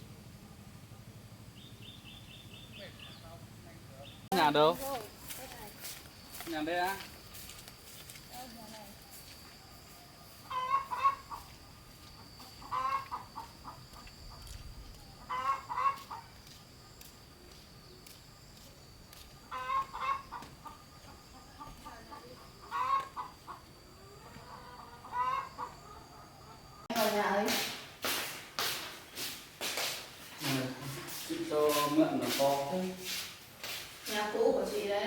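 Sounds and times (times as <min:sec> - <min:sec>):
chickens clucking: 0:10.4 - 0:16.3, 0:19.4 - 0:26.9.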